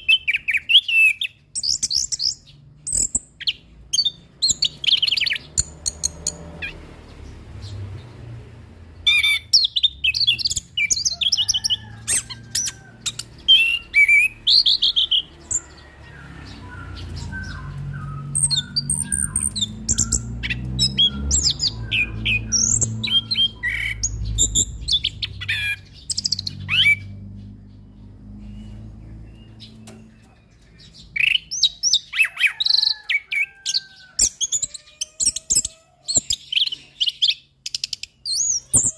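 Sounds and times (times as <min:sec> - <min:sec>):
low background rumble: 0:07.0 - 0:31.2
thrush singing whistled phrases: 0:13.5 - 0:27.1.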